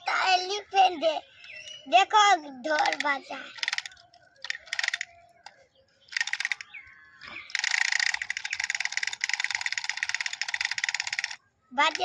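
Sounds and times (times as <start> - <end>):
toy drum clicking taps: 2.8 - 5.1, 6.1 - 6.6, 7.5 - 12.0.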